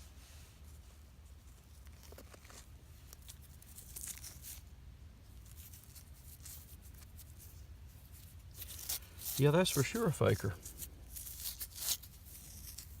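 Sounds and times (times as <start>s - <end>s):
dirt and stones scraping: 8.0s - 13.0s.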